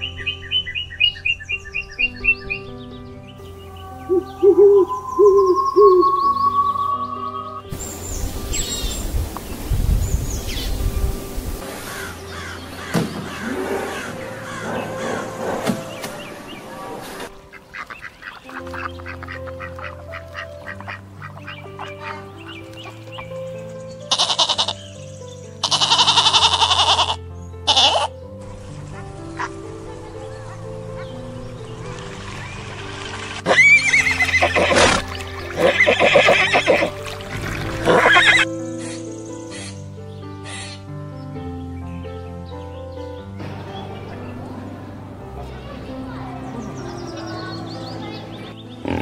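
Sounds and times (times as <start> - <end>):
quiet background music: 0.0 - 49.0
swans and ducks honking and quacking: 11.6 - 23.4, 24.0 - 24.9, 25.6 - 38.5
horse whinnying: 25.6 - 28.1, 33.4 - 38.5.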